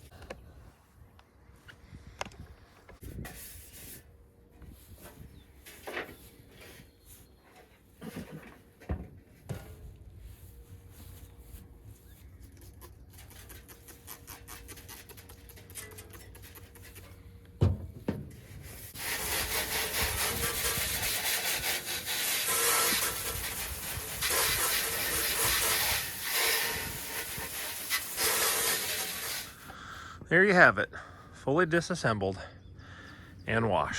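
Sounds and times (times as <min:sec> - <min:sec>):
hose spraying water hiss: 0:18.6 - 0:29.7.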